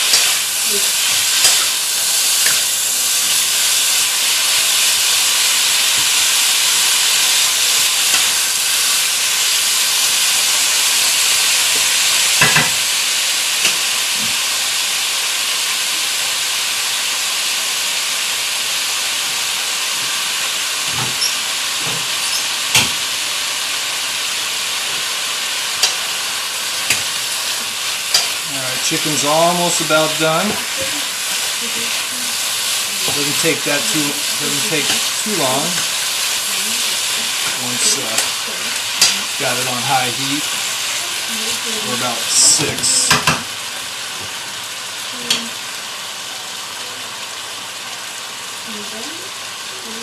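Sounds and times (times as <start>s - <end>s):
knocks of stirring in pan: 0.0s - 13.0s, 19.1s - 23.3s, 24.4s - 44.7s
food sizzling in hot oil: 0.0s - 50.0s.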